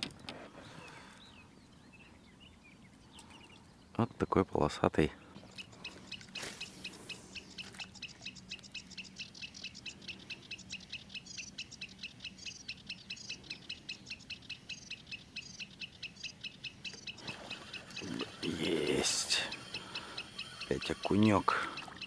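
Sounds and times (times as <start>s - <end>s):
birds chirping: 0.0s - 22.0s
fishing reel ticking: 17.7s - 22.0s.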